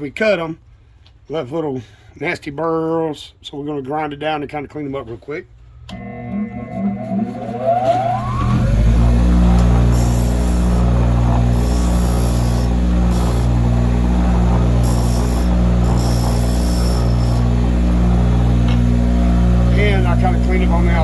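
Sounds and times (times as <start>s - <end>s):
grinder motor humming: 5.9s - 21.0s
hissing grinding of tube ends: 9.8s - 13.7s, 14.5s - 17.6s.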